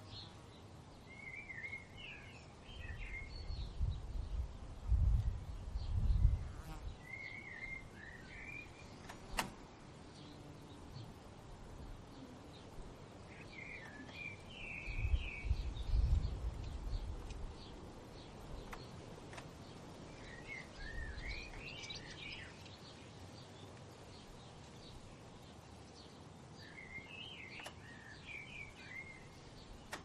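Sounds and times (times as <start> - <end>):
bird warbling song: 0.0 - 4.4, 5.8 - 9.4, 11.8 - 30.0.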